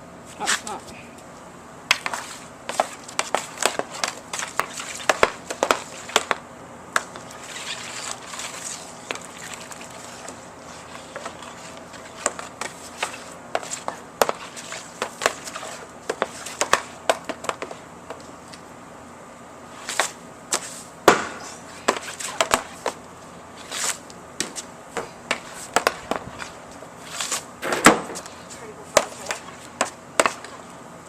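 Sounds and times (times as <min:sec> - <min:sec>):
hockey stick clacking on puck: 0:01.9 - 0:06.4, 0:29.0 - 0:30.5.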